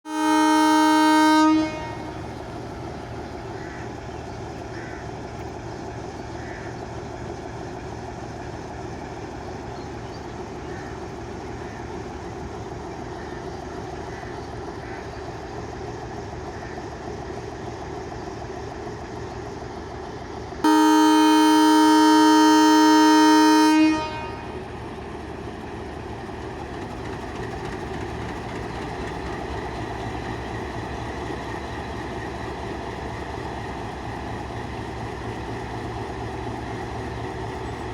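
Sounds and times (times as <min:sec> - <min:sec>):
train horn blast: 0:00.1 - 0:02.4, 0:20.6 - 0:25.0
diesel locomotive rumbling: 0:00.1 - 0:37.9.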